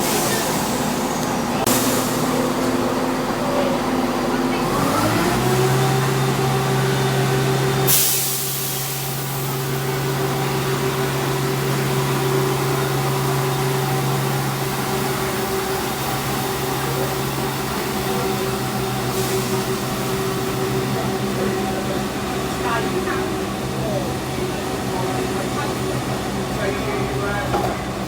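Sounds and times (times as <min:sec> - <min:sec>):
train humming: 0:00.0 - 0:28.0
air brake hiss: 0:07.9 - 0:09.6.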